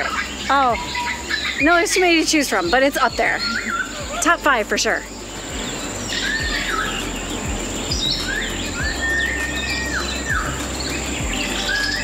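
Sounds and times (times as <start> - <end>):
birds whistling: 0.0 - 12.0.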